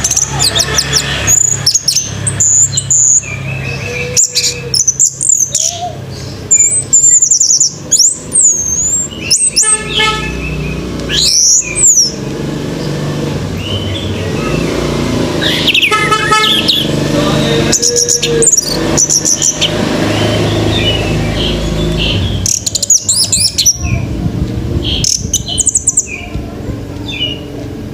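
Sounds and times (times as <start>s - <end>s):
bird singing whistled song: 0.0s - 12.2s, 17.7s - 24.1s, 24.9s - 26.3s.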